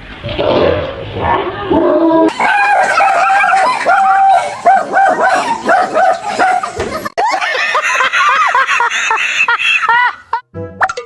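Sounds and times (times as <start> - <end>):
dog barking and yelping: 2.3 - 7.2.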